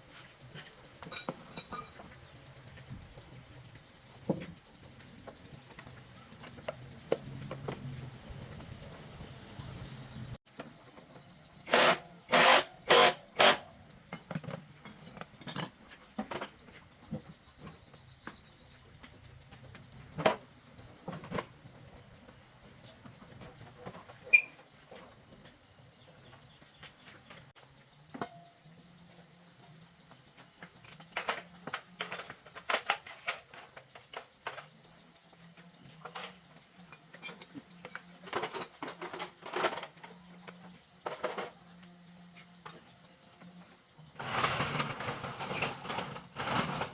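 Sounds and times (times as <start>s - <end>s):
high-pitched insect drone: 11.5s - 15.7s.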